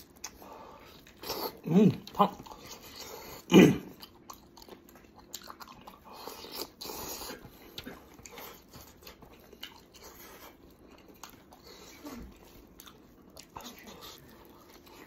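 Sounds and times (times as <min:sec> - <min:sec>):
man chewing with wet smacks: 0:00.0 - 0:15.0.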